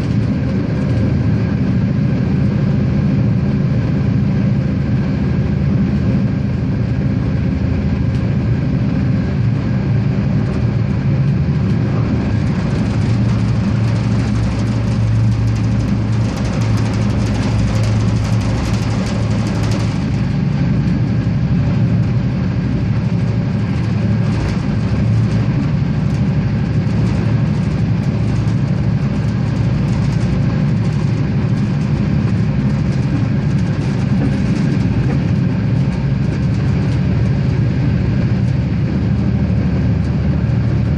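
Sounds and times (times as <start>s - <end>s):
railcar engine hum: 0.0s - 40.9s
wheels rolling on track: 10.5s - 20.4s
light clicking and rattling: 11.6s - 20.4s.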